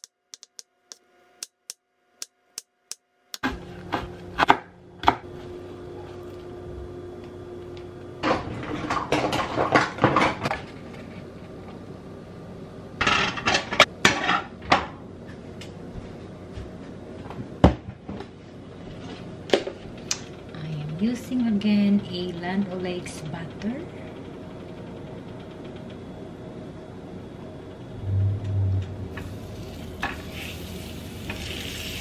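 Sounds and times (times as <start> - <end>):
steady low hum: 14.9 - 32.0.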